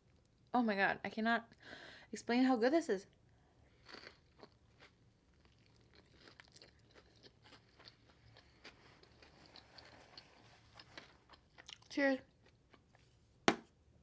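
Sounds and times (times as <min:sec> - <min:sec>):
chewing with small crunches: 0:03.7 - 0:13.2.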